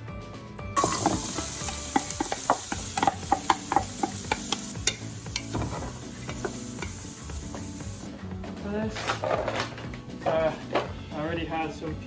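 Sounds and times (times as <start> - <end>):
utensil clicking against pan: 0.8 - 8.0
onions sizzling in oil: 0.8 - 8.1.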